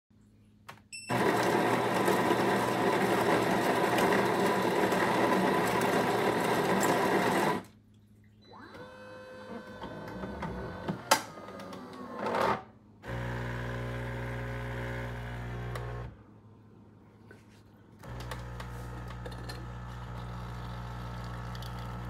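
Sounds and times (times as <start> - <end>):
coffee grinder running: 1.1 - 7.7, 13.1 - 16.1, 18.0 - 22.0
motor whine and hum: 13.1 - 16.2.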